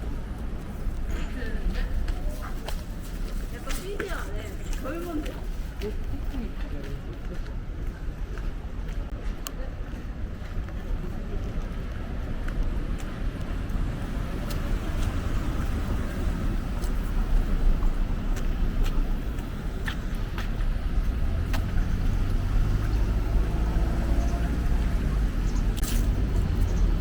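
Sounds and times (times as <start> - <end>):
car passing: 12.7 - 27.0.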